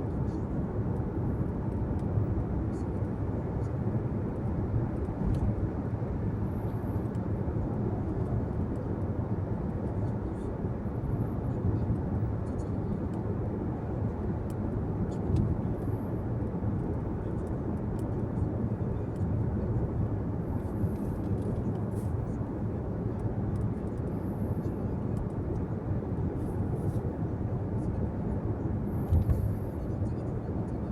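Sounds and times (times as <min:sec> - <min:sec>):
car driving on road: 0:28.8 - 0:29.8.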